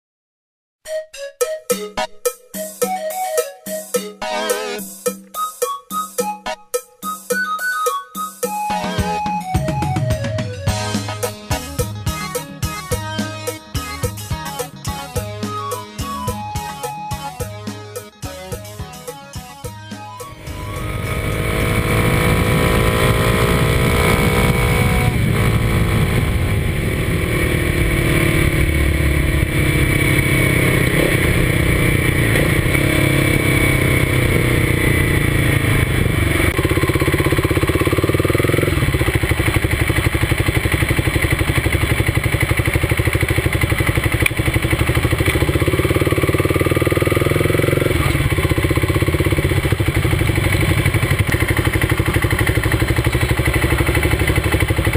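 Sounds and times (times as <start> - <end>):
motorcycle engine running: 20.2 - 54.9.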